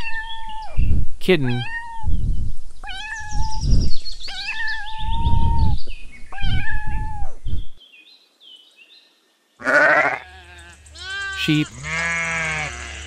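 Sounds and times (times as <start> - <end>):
kitten meowing: 1.5 - 2.1, 2.8 - 3.7, 4.3 - 7.4.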